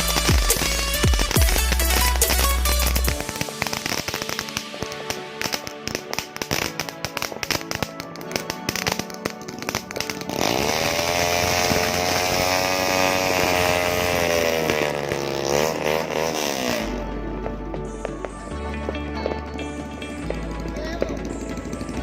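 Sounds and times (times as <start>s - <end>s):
firecrackers popping: 0.0s - 22.0s
buzzing drawn-out tone: 10.3s - 17.1s.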